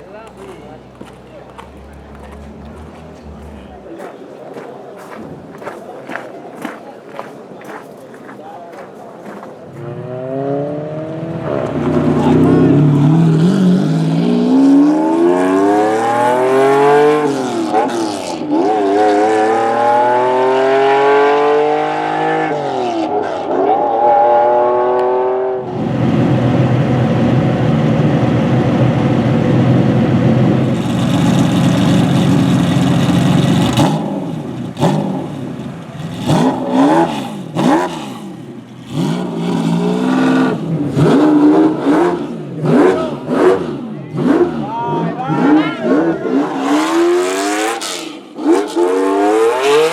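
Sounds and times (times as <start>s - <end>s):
sports car engine accelerating: 0.0s - 4.1s, 9.7s - 49.9s
engine throttle blips: 0.0s - 4.3s.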